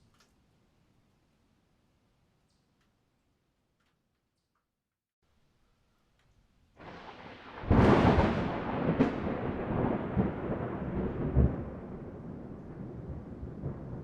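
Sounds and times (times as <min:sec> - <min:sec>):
rolling thunder rumble: 0:06.8 - 0:14.0
sharp thunderclap: 0:06.8 - 0:14.0.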